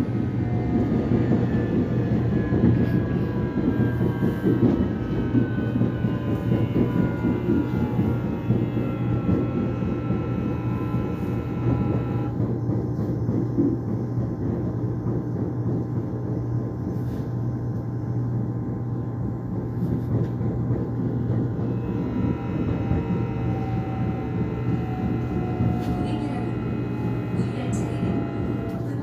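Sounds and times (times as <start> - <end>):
train wheels rumbling on track: 0.0 - 29.0
electric motor whine: 1.6 - 12.4, 21.6 - 29.0.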